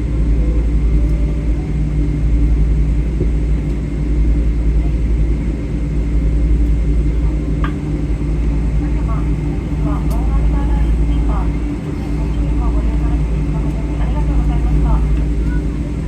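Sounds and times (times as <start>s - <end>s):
airplane cabin rumble: 0.0s - 16.0s
steady hums: 0.0s - 16.0s.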